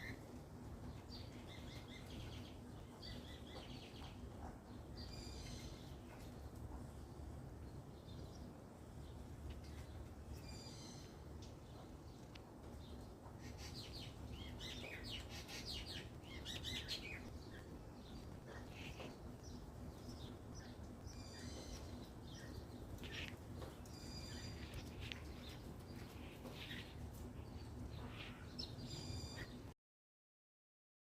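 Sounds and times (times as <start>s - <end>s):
faint low hum: 0.0s - 29.7s
magpies calling and chirping: 12.9s - 29.6s.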